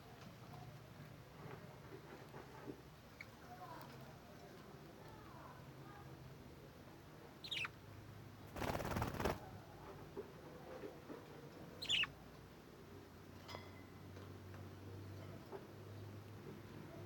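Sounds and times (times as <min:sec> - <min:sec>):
budgerigar chirp: 0:07.4 - 0:07.7, 0:11.8 - 0:12.1
wing flapping: 0:08.5 - 0:09.5.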